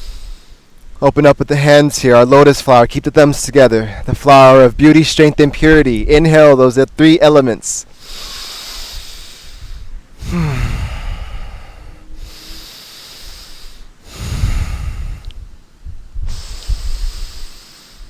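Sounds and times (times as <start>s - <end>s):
person breathing deeply: 0.0s - 0.7s, 7.9s - 15.6s, 16.2s - 18.0s
voiced sigh: 8.0s - 15.4s.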